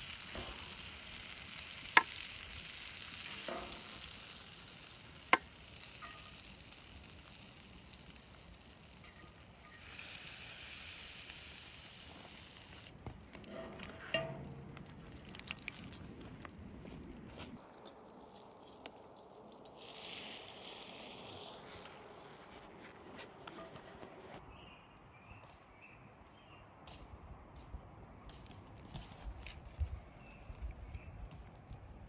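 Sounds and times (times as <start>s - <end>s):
steak sizzling in a pan: 0.0s - 12.9s
small ticks and knocks: 13.0s - 16.5s.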